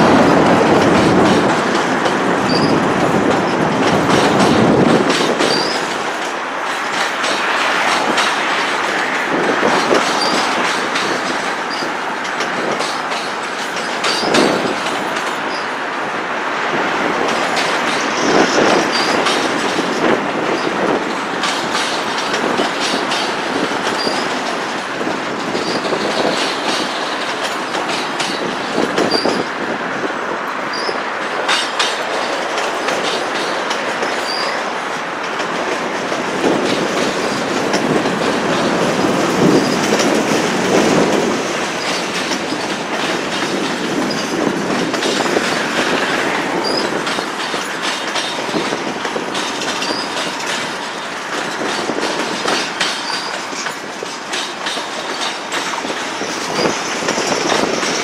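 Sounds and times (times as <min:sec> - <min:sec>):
steel wheel rumble: 0:00.0 - 0:58.0
wheels clicking over rail joints: 0:00.0 - 0:58.0
high wheel squeals: 0:02.4 - 0:02.8, 0:29.0 - 0:29.5, 0:30.7 - 0:31.0, 0:34.1 - 0:34.7, 0:46.6 - 0:47.0, 0:49.8 - 0:50.2.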